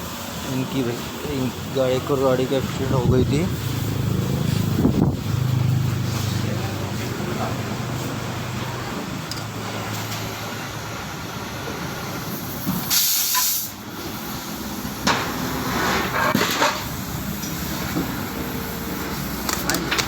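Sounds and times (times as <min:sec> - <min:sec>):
workshop noise: 0:00.0 - 0:20.0
hiss of air or spray: 0:12.1 - 0:15.8, 0:16.9 - 0:19.8.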